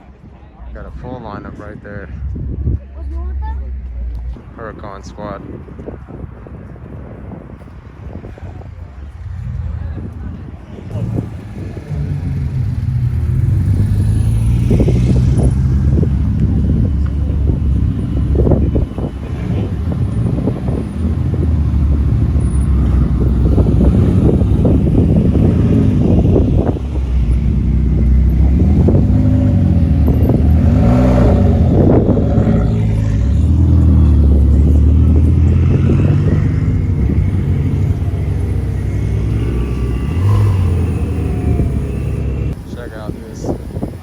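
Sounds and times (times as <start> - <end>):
sports car engine revving: 10.9 - 44.0.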